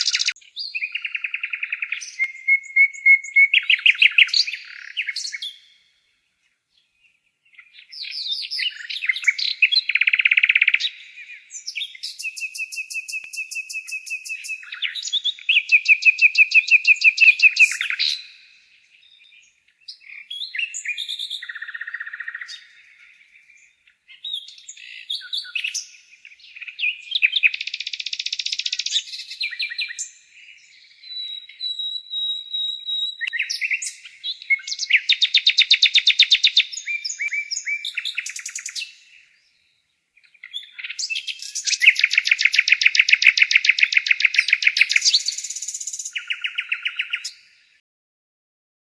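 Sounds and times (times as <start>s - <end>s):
nightingale singing: 0.0s - 47.8s.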